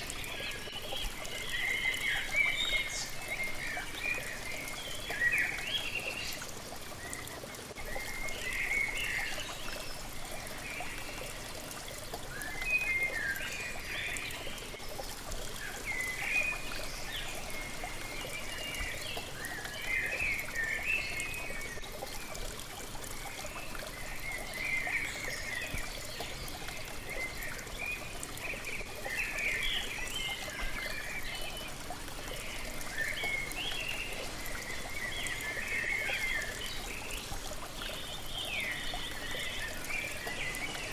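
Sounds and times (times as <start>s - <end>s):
small birds chirping: 0.0s - 22.7s.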